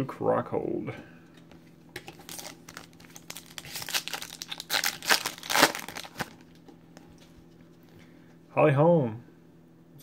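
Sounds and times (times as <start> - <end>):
foil wrapper crinkling: 2.0 - 6.6.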